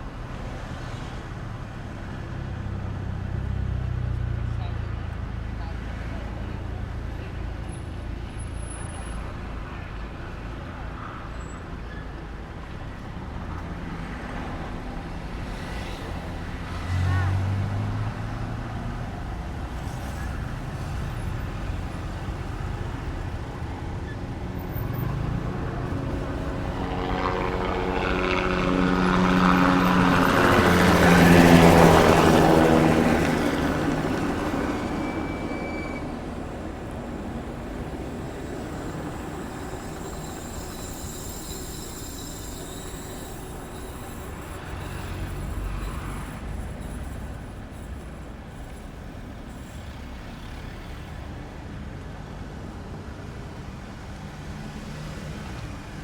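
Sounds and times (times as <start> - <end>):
vehicle passing by: 16.2 - 40.3.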